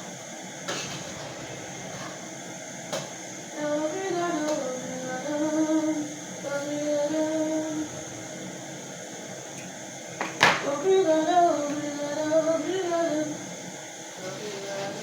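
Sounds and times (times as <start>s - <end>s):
woman singing: 3.5s - 8.1s, 10.4s - 13.6s, 14.2s - 15.0s.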